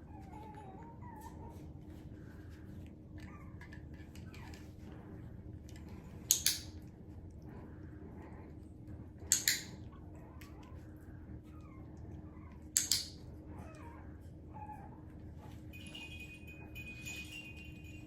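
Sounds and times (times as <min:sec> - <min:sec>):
puppy whining: 0:00.0 - 0:06.8, 0:07.4 - 0:18.0.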